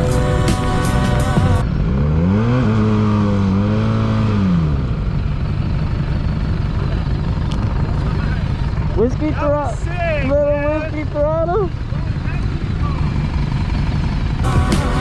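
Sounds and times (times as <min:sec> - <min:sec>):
motorcycle engine revving: 0:00.0 - 0:09.5, 0:10.7 - 0:15.0.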